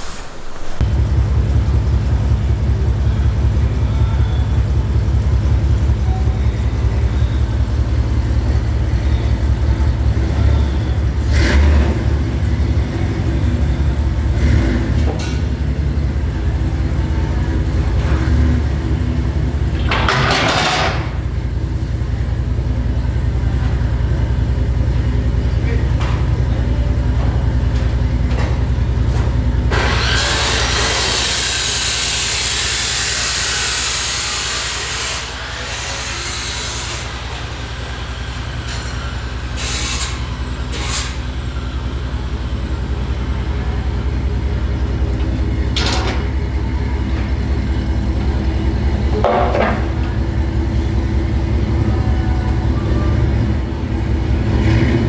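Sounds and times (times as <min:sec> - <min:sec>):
rushing hissy noise: 0:00.0 - 0:00.8
truck engine deep rumble: 0:00.0 - 0:55.0.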